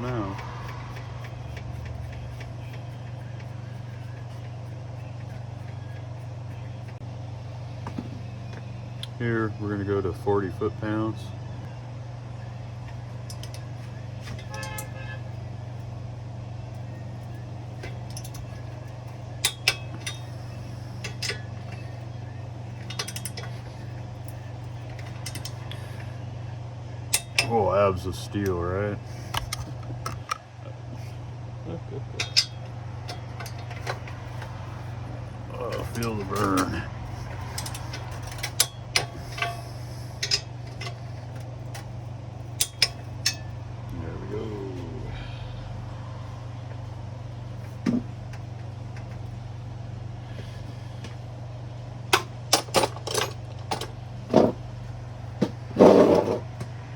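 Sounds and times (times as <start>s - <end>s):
steady low hum: 0.0s - 56.9s
hand tools clicking on metal: 19.4s - 20.3s, 22.8s - 23.7s, 24.3s - 25.8s, 27.1s - 27.6s, 32.2s - 34.8s, 35.5s - 41.9s, 42.5s - 43.5s
metal hand tools clinking: 22.8s - 23.7s, 32.2s - 34.5s.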